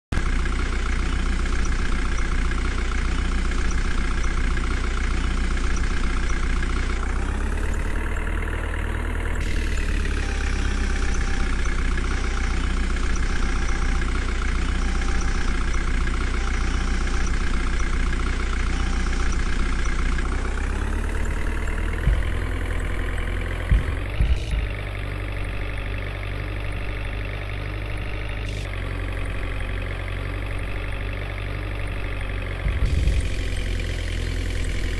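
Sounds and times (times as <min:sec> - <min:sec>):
heavy vehicle engine running: 0:00.1 - 0:34.9
sharp knocks: 0:23.7 - 0:24.7.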